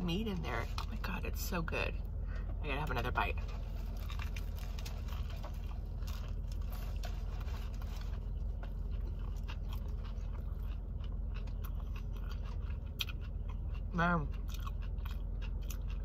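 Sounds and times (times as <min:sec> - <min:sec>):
steady low hum: 0:00.0 - 0:16.0
crunchy chewing of bread: 0:03.4 - 0:16.0.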